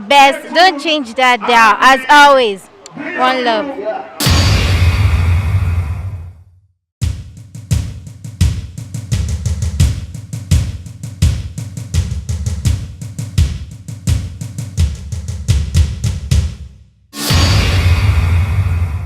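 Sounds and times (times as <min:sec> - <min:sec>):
drum kit playing busy beat: 0:04.2 - 0:04.8, 0:07.0 - 0:17.8.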